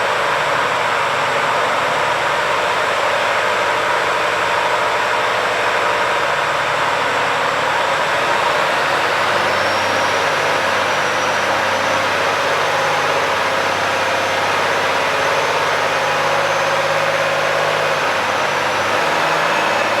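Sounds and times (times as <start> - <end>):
diesel truck idling: 6.5 - 20.0.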